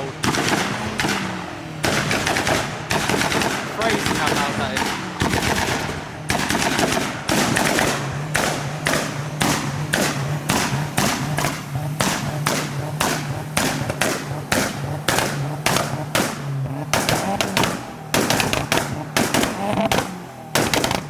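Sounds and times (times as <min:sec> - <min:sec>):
car engine running: 0:00.0 - 0:21.0
car exhaust banging: 0:00.0 - 0:21.0.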